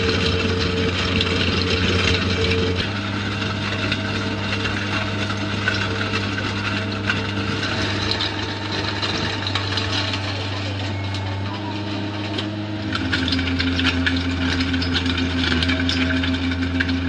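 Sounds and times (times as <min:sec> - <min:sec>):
machinery low hum: 0:00.0 - 0:17.0.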